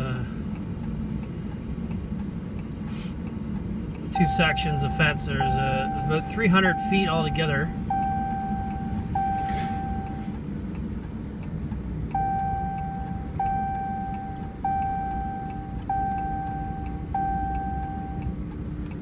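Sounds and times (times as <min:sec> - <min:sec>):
engine and road rumble: 0:00.0 - 0:19.0
seatbelt warning chime dinging: 0:04.0 - 0:10.4, 0:11.4 - 0:19.0.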